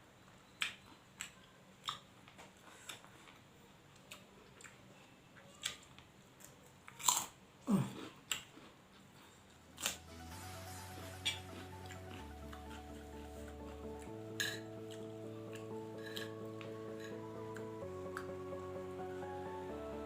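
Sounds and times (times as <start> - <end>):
person chewing crunchy food: 5.6 - 10.1, 11.2 - 18.2.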